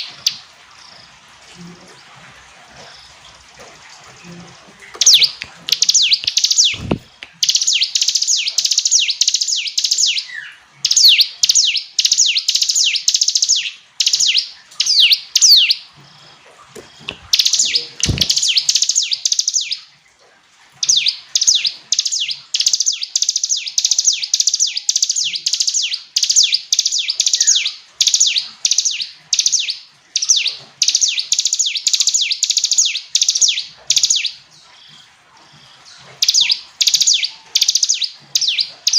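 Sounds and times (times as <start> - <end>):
bird singing falling notes: 5.0 - 15.9, 16.8 - 19.9, 20.8 - 34.4
low thumps: 6.7 - 7.3.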